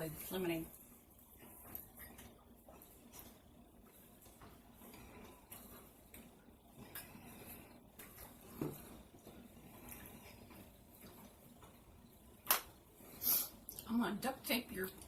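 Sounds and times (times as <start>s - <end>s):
faint chewing: 0.8s - 12.2s.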